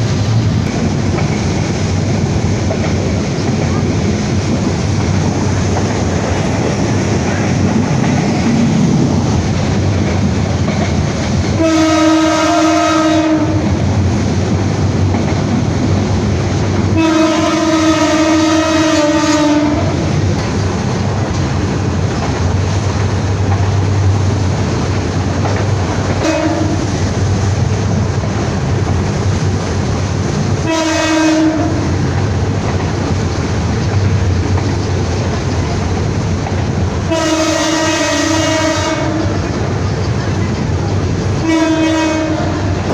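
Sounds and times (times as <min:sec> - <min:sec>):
train rumble and rail clatter: 0:00.0 - 0:42.9
locomotive horn blasts: 0:11.6 - 0:13.7, 0:17.0 - 0:20.0, 0:26.2 - 0:26.8, 0:30.6 - 0:31.9, 0:37.1 - 0:39.4, 0:41.4 - 0:42.8.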